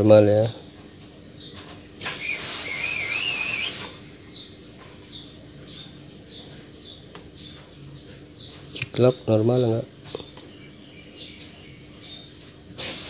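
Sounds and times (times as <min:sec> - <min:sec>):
small birds chirping: 0:00.0 - 0:13.0
loud hiss: 0:02.0 - 0:04.0, 0:12.8 - 0:13.0
wavering whistle: 0:02.1 - 0:04.0.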